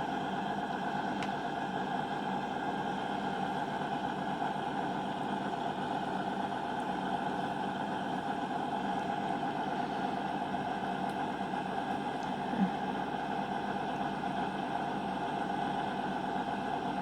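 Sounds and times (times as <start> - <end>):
train engines idling: 0.0 - 12.2.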